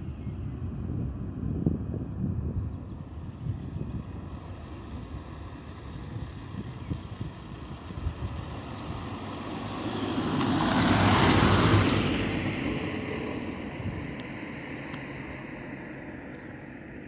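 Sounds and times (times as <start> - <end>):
vehicle passing by: 4.2 - 17.0.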